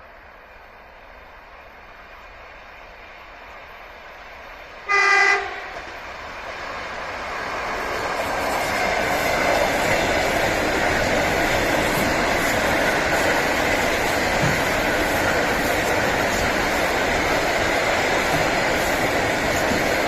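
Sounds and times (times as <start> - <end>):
train passing: 0.0 - 20.0
train horn blast: 4.8 - 5.8
train wheel clicks: 7.4 - 20.0.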